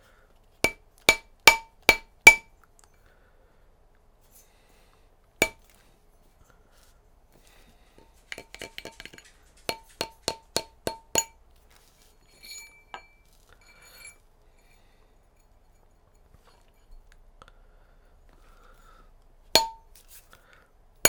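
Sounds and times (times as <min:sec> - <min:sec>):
mallet striking metal ring: 0:00.7 - 0:02.5, 0:09.7 - 0:11.3, 0:19.6 - 0:19.9
soft metallic clinks: 0:00.7 - 0:02.5, 0:05.4 - 0:05.6, 0:08.4 - 0:11.3, 0:12.2 - 0:17.2, 0:19.6 - 0:19.9.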